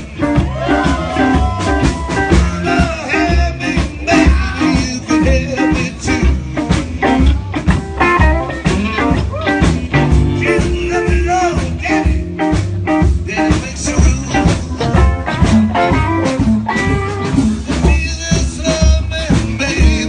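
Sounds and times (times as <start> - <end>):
person singing: 0.0 - 7.8, 10.3 - 16.1, 17.7 - 20.0
live blues band playing: 0.0 - 20.0.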